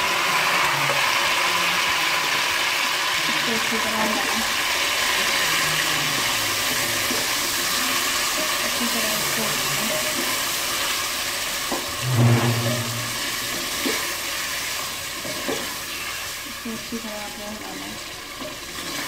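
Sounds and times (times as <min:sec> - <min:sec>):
food sizzling in a pot: 0:00.0 - 0:19.0
brief low hum: 0:12.0 - 0:13.4.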